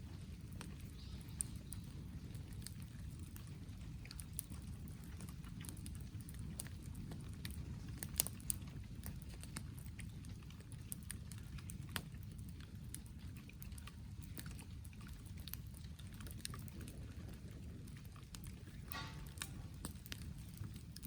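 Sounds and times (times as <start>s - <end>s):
campfire crackling: 0.0s - 21.0s
low background noise: 15.3s - 21.0s.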